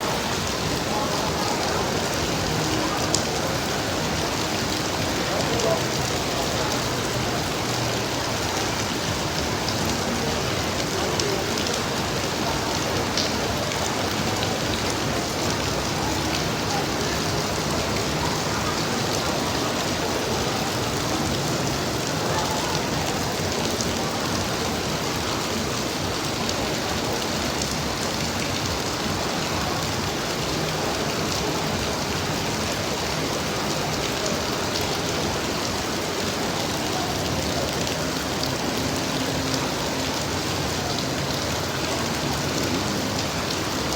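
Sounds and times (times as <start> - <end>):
rain falling on hard surfaces: 0.0 - 43.9.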